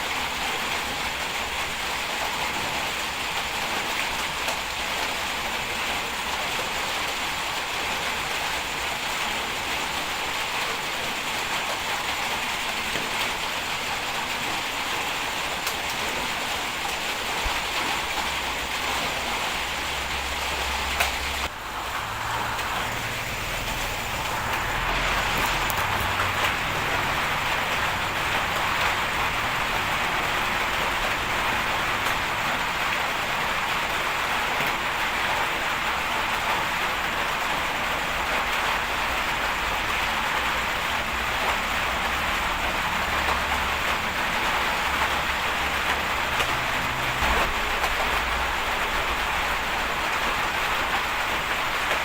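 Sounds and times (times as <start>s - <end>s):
bulldozer diesel engine running: 20.3s - 31.7s.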